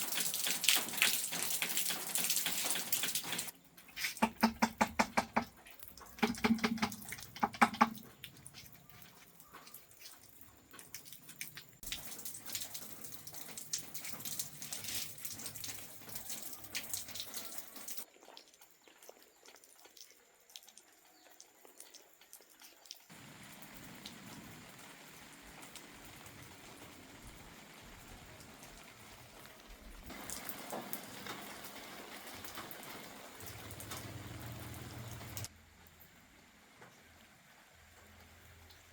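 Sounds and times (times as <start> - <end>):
water running and dripping: 0.0 - 38.9
sharp knocks: 4.2 - 5.5, 6.2 - 8.0.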